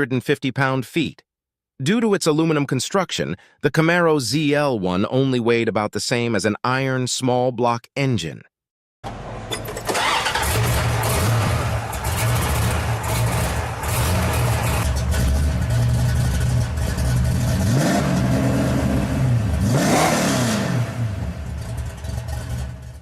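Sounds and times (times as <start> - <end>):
car engine revving: 9.1 - 23.0.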